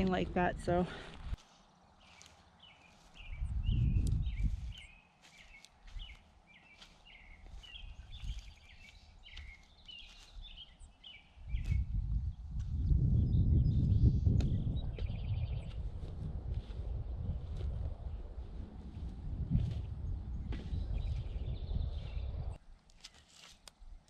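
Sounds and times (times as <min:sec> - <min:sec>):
birds chirping: 0:00.0 - 0:22.6
low rumble: 0:03.4 - 0:04.7, 0:11.6 - 0:22.6.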